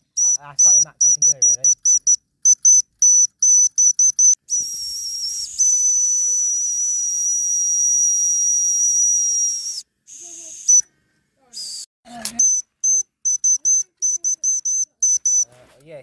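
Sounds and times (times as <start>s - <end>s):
high-pitched steam whistle: 4.5s - 10.8s.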